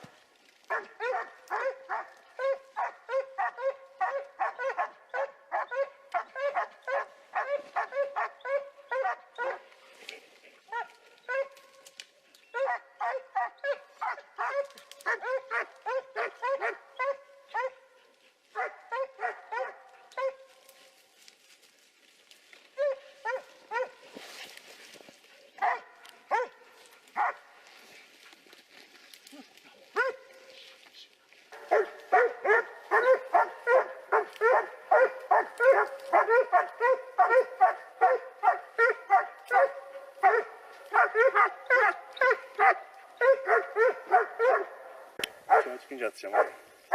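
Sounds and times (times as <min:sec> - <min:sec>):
dog barking rapidly: 0:00.7 - 0:09.6, 0:12.6 - 0:17.8, 0:18.6 - 0:20.4, 0:22.8 - 0:24.0, 0:25.6 - 0:26.6, 0:27.2 - 0:27.4, 0:30.0 - 0:30.2, 0:31.6 - 0:44.8, 0:45.5 - 0:46.6.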